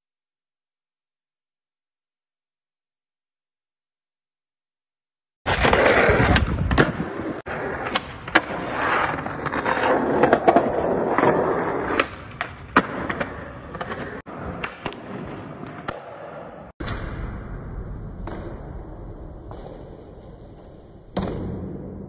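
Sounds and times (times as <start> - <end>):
skateboard wheels rolling on concrete: 5.4 - 16.8
skateboard clacks: 5.5 - 16.7.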